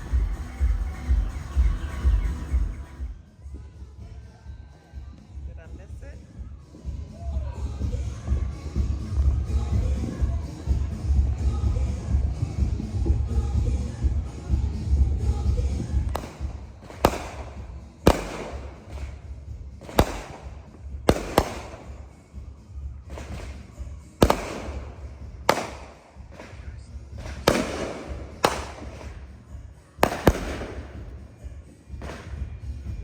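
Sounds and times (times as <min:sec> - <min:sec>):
fireworks bangs: 0:15.6 - 0:22.2, 0:23.1 - 0:23.6, 0:24.2 - 0:29.3, 0:30.0 - 0:31.3.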